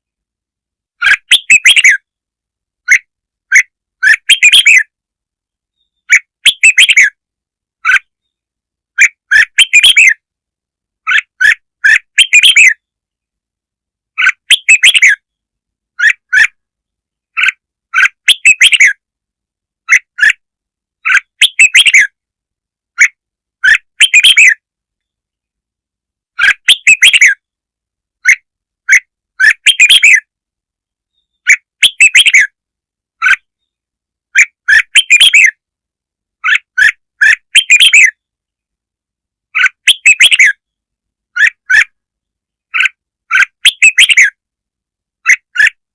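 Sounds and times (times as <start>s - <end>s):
bird chirping phrases: 1.0s - 2.2s, 2.8s - 5.0s, 5.6s - 7.2s, 7.8s - 10.3s, 11.0s - 13.1s, 14.1s - 19.0s, 21.0s - 22.2s, 22.9s - 25.6s, 26.3s - 27.6s, 28.2s - 30.4s, 31.0s - 32.6s, 33.2s - 35.6s, 36.4s - 38.7s, 39.5s - 44.4s, 45.2s - 45.8s.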